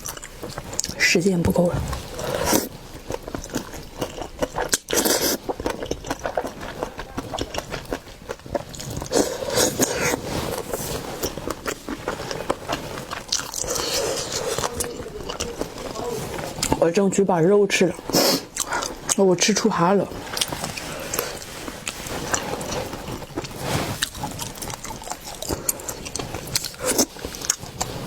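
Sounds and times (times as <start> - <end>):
chewing and mouth smacks: 20.4 - 28.0.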